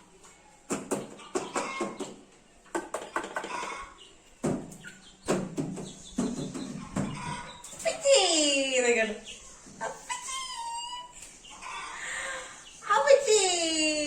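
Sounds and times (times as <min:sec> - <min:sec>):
parrot chirps and calls: 0:08.9 - 0:13.1.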